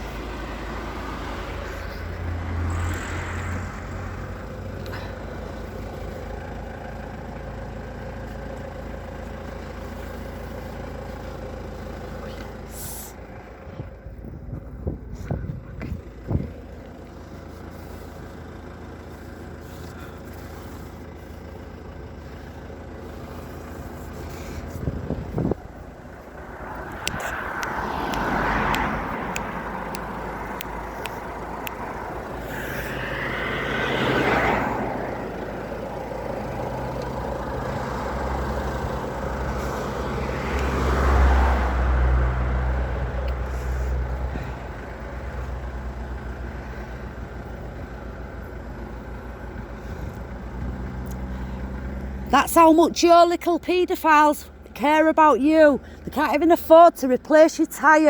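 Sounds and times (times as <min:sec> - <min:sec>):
low engine hum: 0:00.0 - 0:58.0
vehicles passing: 0:00.0 - 0:58.0.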